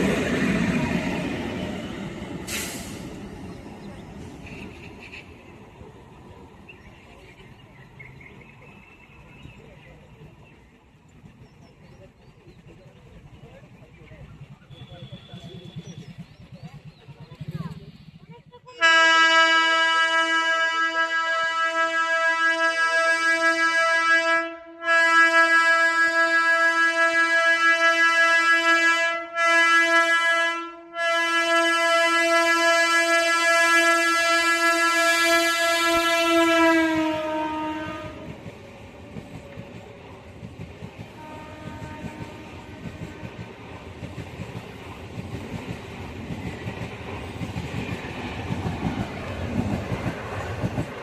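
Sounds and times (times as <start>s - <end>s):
train wheels clacking on rails: 10.2s - 18.5s, 37.8s - 51.0s
train horn blast: 18.8s - 38.4s, 41.1s - 43.6s.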